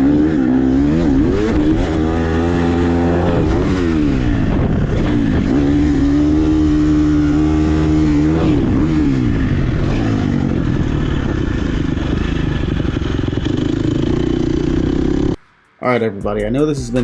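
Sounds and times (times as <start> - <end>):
dirt bike engine revving: 0.0 - 15.5.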